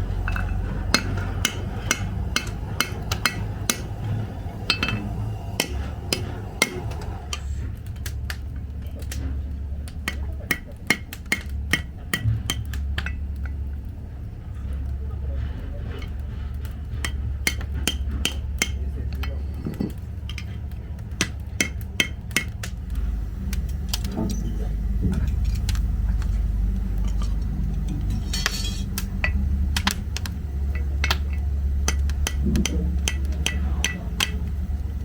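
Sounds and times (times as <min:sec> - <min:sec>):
hammer striking steel: 0:00.0 - 0:07.4, 0:10.0 - 0:13.5, 0:17.0 - 0:20.6, 0:21.2 - 0:22.8, 0:23.6 - 0:35.0
low hum: 0:00.0 - 0:35.0.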